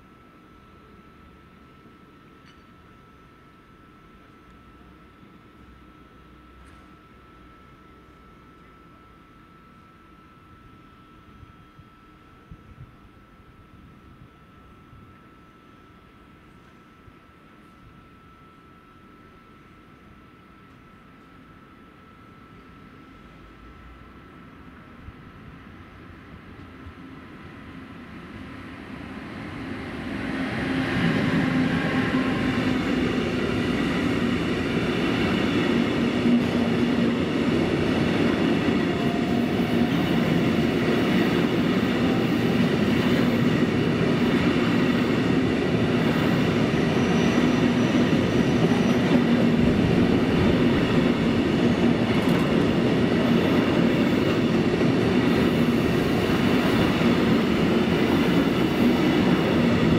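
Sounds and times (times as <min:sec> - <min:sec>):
freight train wheels rumbling on rail: 0:19.6 - 0:59.9.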